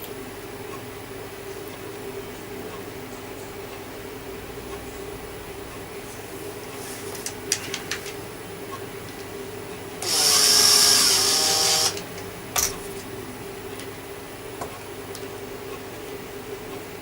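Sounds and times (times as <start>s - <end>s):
power drill whining: 10.0s - 12.1s.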